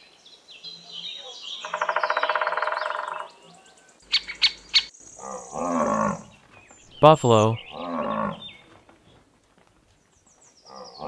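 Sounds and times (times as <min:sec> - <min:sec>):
woodpecker calling: 0:01.6 - 0:03.4, 0:04.0 - 0:08.7.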